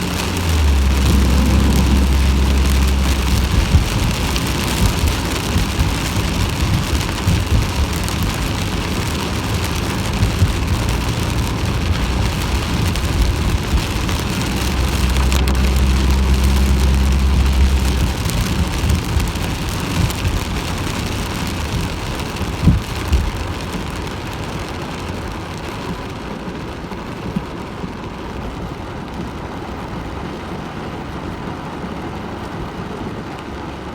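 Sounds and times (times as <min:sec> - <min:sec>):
low steady hum: 0:00.0 - 0:08.5
heavy rain: 0:00.0 - 0:33.9.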